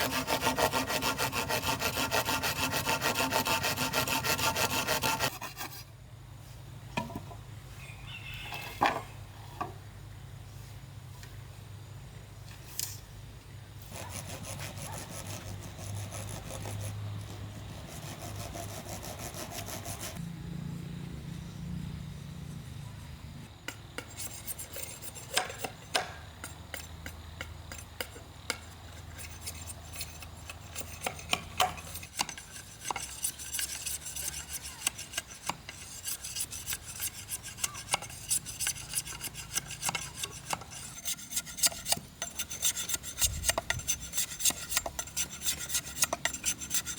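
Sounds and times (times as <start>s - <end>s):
hand tool scraping bamboo: 0.0s - 5.9s, 24.0s - 46.9s.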